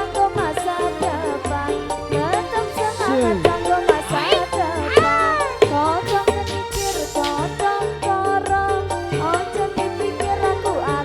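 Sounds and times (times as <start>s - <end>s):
bass line: 0.0s - 11.0s
steady drum beat: 0.0s - 11.0s
sliding melody line: 2.9s - 7.9s.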